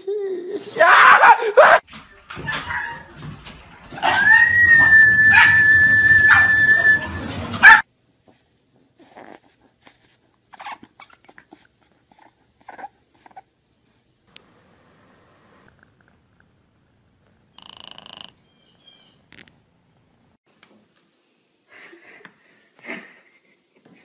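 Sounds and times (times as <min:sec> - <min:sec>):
small dog whining howl: 0:04.0 - 0:07.1
puppy whimpers and snuffles: 0:09.0 - 0:13.5.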